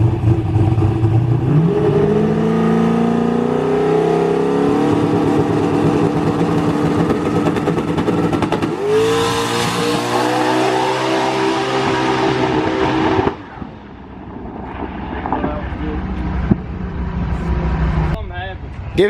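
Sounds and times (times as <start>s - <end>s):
car engine accelerating hard: 0.0s - 13.6s.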